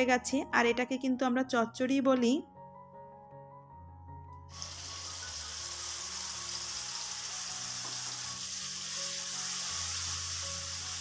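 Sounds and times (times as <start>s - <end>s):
spice paste sizzling in oil: 4.5s - 11.0s.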